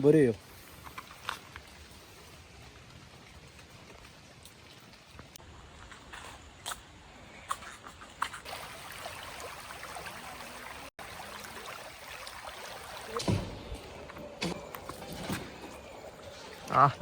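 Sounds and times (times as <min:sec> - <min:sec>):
stream trickling: 0:07.6 - 0:17.0.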